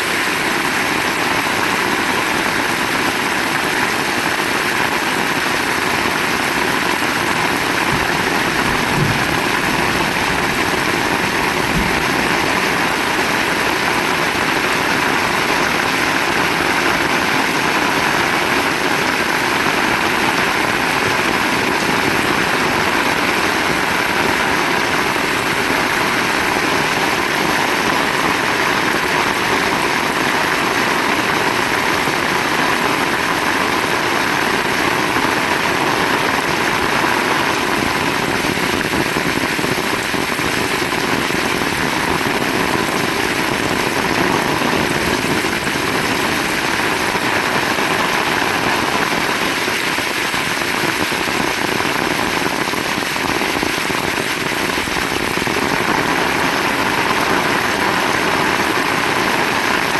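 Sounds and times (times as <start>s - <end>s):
heavy rain pouring: 0.0s - 59.9s
low thumps: 6.9s - 14.2s.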